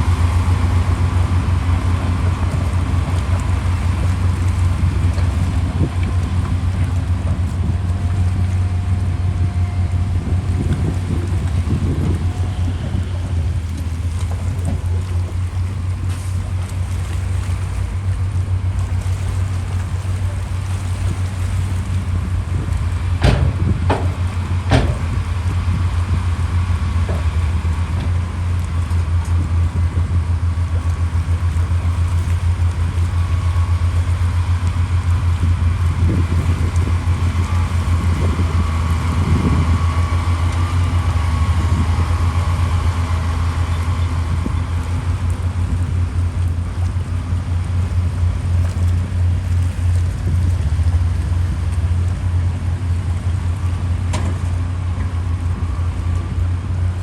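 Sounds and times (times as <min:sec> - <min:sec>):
heavy diesel engine droning: 0:00.0 - 0:57.0
sharp knocks: 0:23.2 - 0:25.3.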